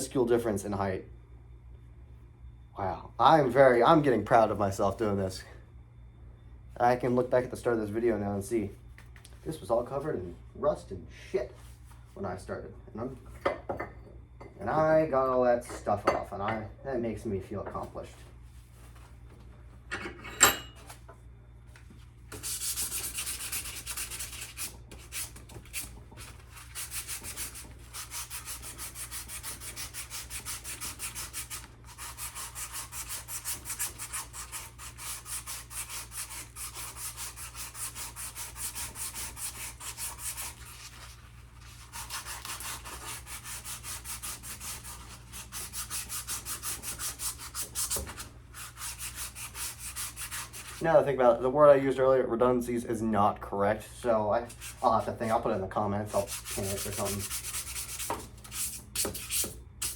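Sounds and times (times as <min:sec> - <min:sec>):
sandpaper rubbing metal: 0:22.3 - 0:50.8, 0:56.1 - 0:59.9.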